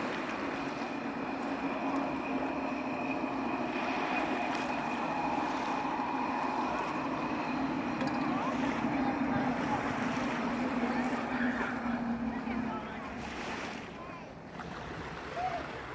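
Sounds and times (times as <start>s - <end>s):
distant engine droning: 0.0s - 15.9s.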